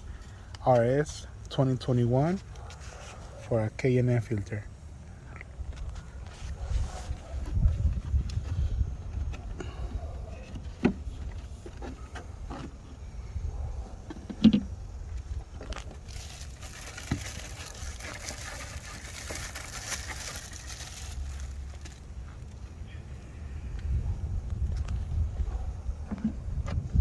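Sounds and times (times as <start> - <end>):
filter rustling and crinkling: 15.4 - 22.7.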